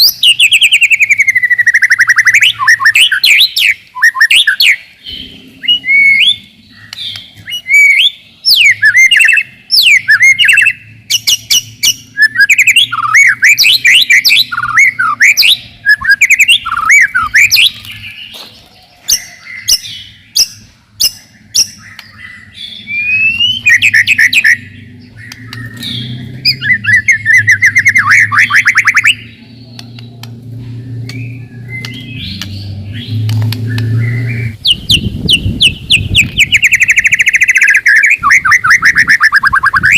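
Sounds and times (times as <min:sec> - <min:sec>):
bird singing whistles and chips: 0:00.0 - 0:39.9
steady low hum: 0:04.9 - 0:08.5, 0:20.0 - 0:37.0.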